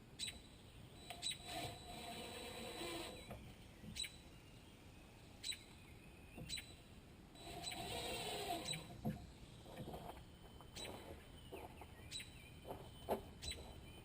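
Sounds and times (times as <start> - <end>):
impact driver whine and hammering: 1.0 - 3.5, 7.4 - 9.2.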